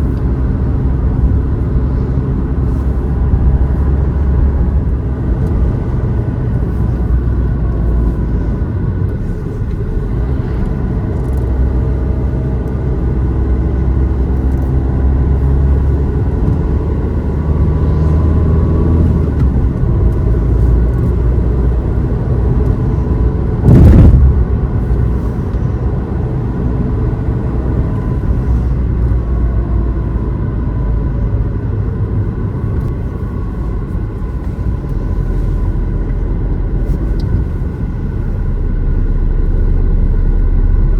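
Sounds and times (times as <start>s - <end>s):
car engine and road rumble: 0.0s - 40.9s
loud burst of noise: 23.6s - 24.7s.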